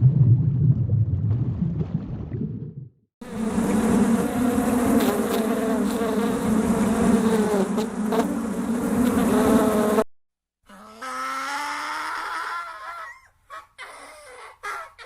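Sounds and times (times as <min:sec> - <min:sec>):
flying insect buzzing: 0:03.2 - 0:10.1.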